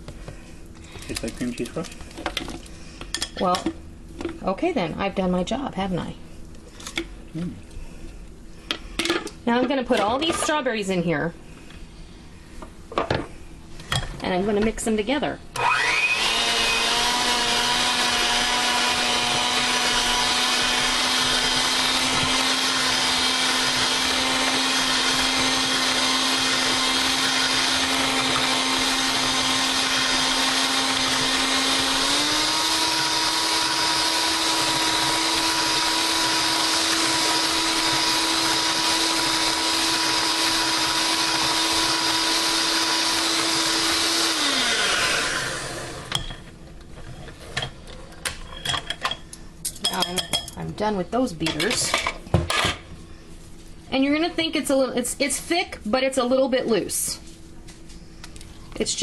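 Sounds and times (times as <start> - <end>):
electric mixer running: 15.6 - 46.2.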